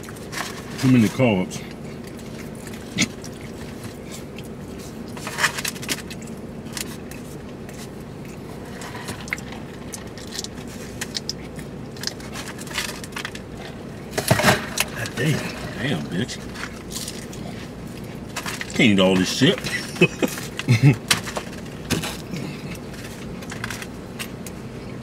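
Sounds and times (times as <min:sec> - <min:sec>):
food containers rustling: 0:00.0 - 0:24.5
chewing and crunching: 0:00.0 - 0:25.0
steady low hum: 0:00.0 - 0:25.0.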